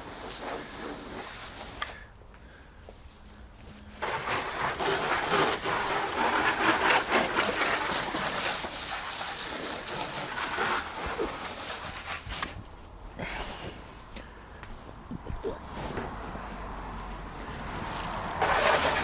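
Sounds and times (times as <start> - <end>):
water spray hissing on a wheel: 0.0 - 2.1, 4.0 - 12.8, 15.8 - 19.0.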